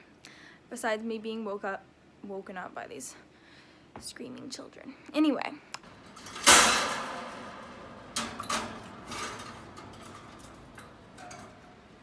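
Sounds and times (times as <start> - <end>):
loud clatter: 5.8 - 12.0.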